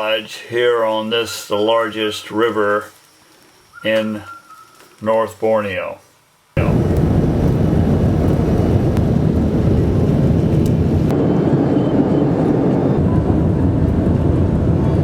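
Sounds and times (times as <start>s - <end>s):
vehicle rumbling in motion: 6.6s - 15.0s.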